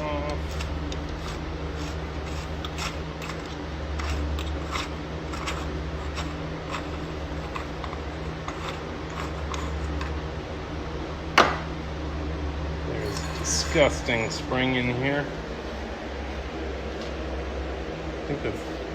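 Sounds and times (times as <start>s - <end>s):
steady low hum: 0.0s - 18.9s
small clicks and scrapes: 0.5s - 10.2s.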